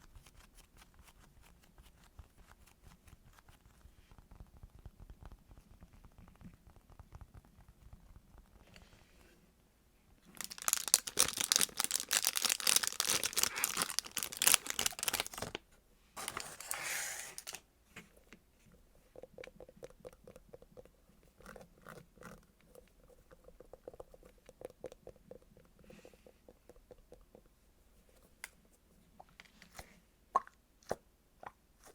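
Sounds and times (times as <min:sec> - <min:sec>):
plastic wrapping crinkling: 0:10.3 - 0:15.6, 0:16.2 - 0:17.6
squishy toy squishes and clicks: 0:10.4 - 0:15.4.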